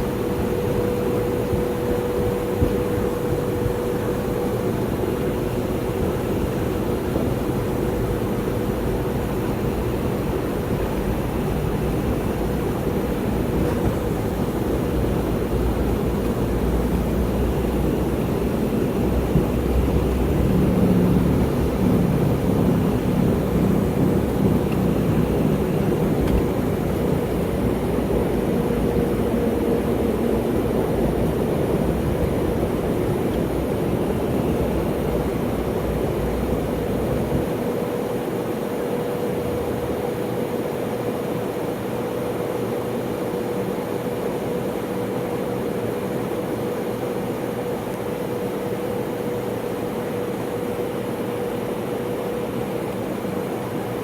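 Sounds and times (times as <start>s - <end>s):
low runway rumble: 0.0s - 41.3s
airliner cabin engine noise: 0.0s - 54.0s
steady engine whine: 0.0s - 54.0s.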